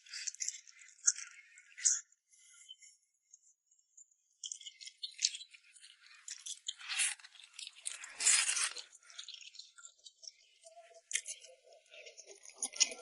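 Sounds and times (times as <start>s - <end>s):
noodles crackling and rustling: 7.8s - 8.8s.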